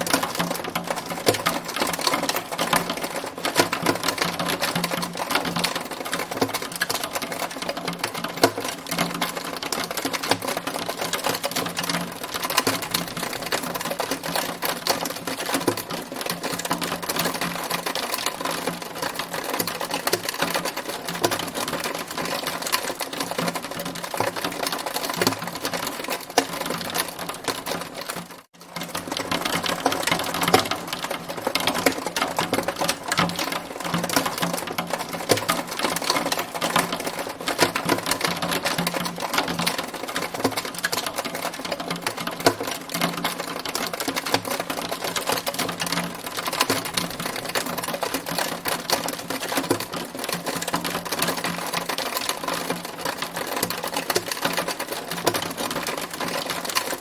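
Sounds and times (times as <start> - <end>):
hail clattering: 0.0 - 57.0.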